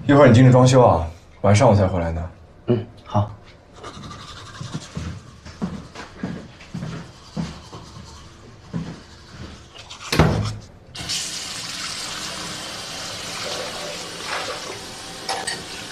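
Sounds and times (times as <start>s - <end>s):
footsteps on hard floor: 4.7s - 9.6s.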